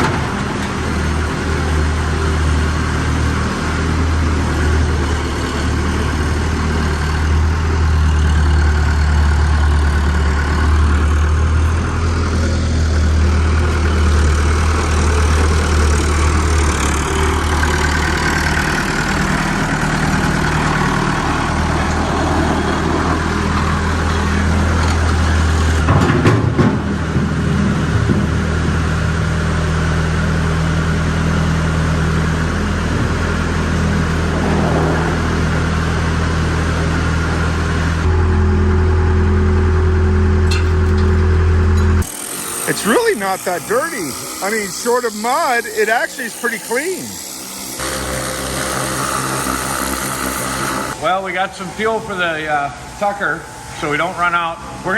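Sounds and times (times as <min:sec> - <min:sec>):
engine idling: 0:00.0 - 0:51.0
knocks or clanks: 0:23.4 - 0:28.3.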